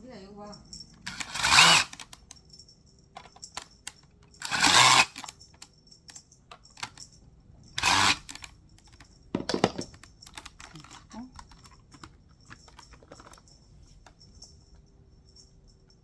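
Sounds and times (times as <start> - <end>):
plastic parts clicking and clattering: 1.0 - 2.4, 3.2 - 5.7, 6.5 - 7.1, 7.8 - 13.5.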